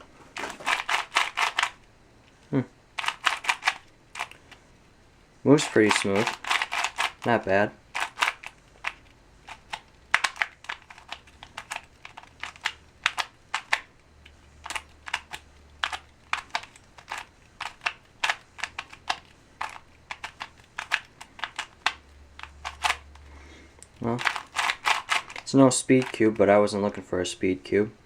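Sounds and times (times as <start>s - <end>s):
plastic puzzle cube clicking: 0.5s - 1.8s, 3.0s - 4.5s, 5.7s - 7.3s, 7.9s - 23.2s, 23.8s - 26.2s.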